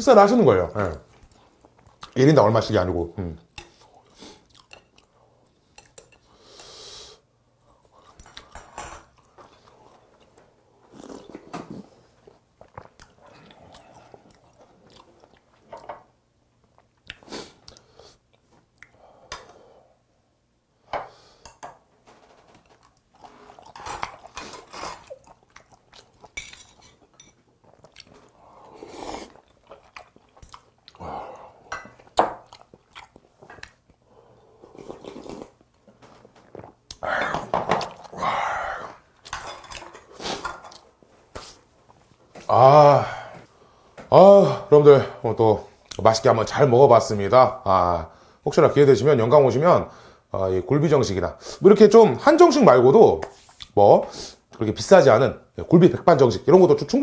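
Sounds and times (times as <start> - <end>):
chewing food: 3.8 - 6.1, 12.2 - 15.9, 22.2 - 31.1, 31.9 - 37.0.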